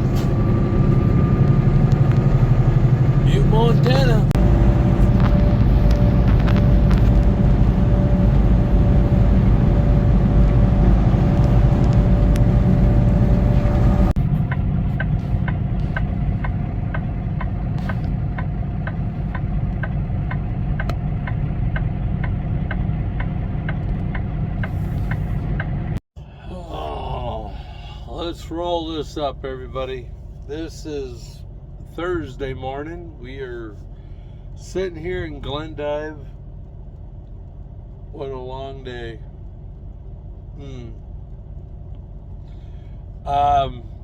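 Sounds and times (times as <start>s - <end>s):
truck engine and road noise: 0.0s - 44.0s
regular clicking: 14.5s - 25.8s.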